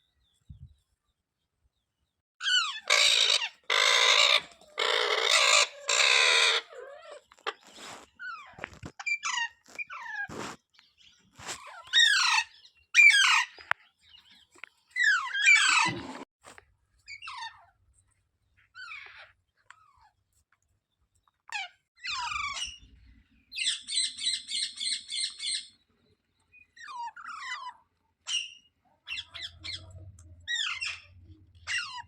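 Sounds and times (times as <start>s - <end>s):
parrot screeching: 2.4s - 7.2s, 11.9s - 13.6s, 15.0s - 16.0s, 31.7s - 32.0s.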